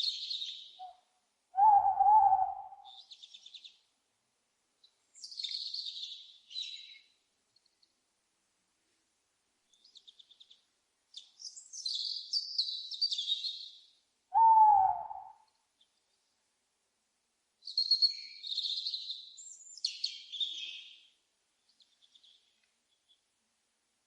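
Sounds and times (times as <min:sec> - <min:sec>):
small songbirds twittering: 0:00.0 - 0:01.0, 0:01.6 - 0:03.9, 0:04.8 - 0:08.0, 0:09.6 - 0:16.4, 0:17.6 - 0:23.3
owl hoot: 0:01.6 - 0:03.0, 0:14.3 - 0:15.5.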